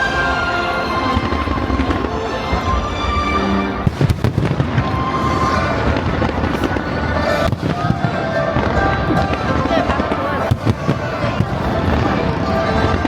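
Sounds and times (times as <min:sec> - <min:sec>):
fireworks bursting and crackling: 0:00.0 - 0:13.0
show music: 0:00.0 - 0:13.0
sharp firework bangs: 0:03.8 - 0:13.0.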